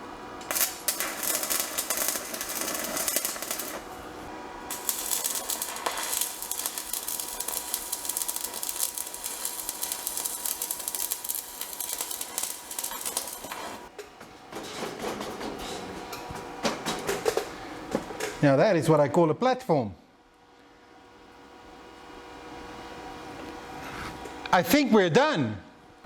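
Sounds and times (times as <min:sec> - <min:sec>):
arc welder crackling: 0:00.0 - 0:13.9.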